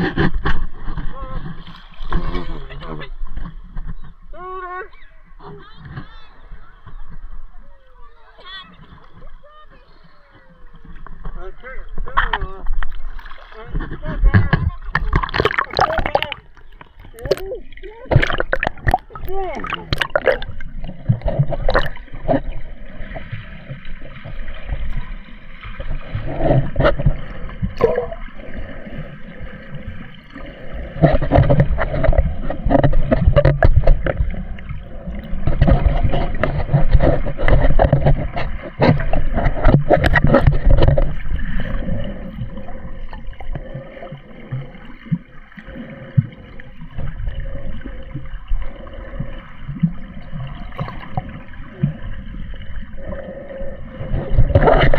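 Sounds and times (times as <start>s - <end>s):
water sloshing and gurgling: 0.0s - 54.9s
small knocks and splashes: 8.4s - 28.2s, 31.0s - 47.3s.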